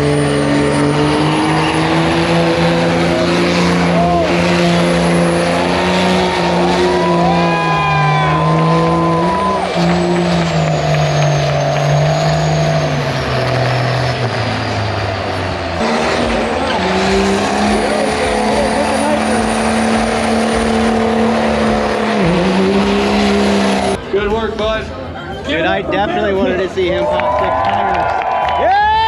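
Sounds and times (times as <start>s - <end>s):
large engines idling: 0.0s - 27.8s.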